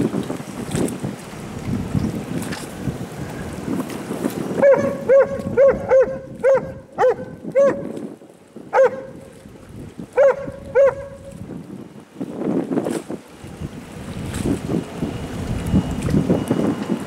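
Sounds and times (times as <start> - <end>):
wind noise on microphone: 0.0 - 17.0
dog barking: 4.6 - 7.8, 8.8 - 9.2, 10.2 - 11.2.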